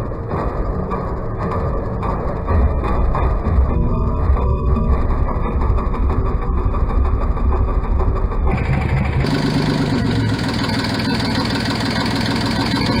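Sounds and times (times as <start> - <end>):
marine diesel engine running: 2.5 - 13.0.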